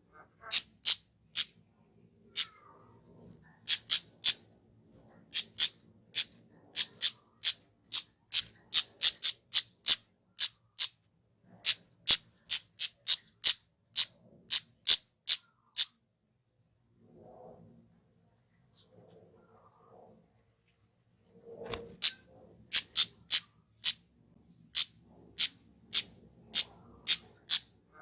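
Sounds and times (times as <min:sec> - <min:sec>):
bird chip calls: 0:00.4 - 0:01.6, 0:02.3 - 0:02.6, 0:03.7 - 0:04.4, 0:05.3 - 0:11.0, 0:11.6 - 0:16.0, 0:21.8 - 0:24.0, 0:24.7 - 0:28.0.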